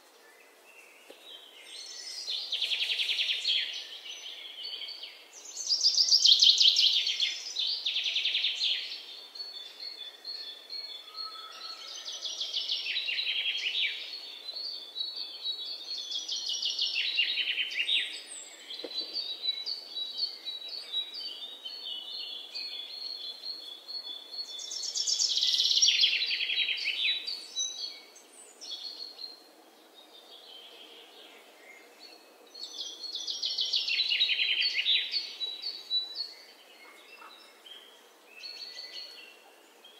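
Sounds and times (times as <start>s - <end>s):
songbird singing trills: 0.2s - 39.9s.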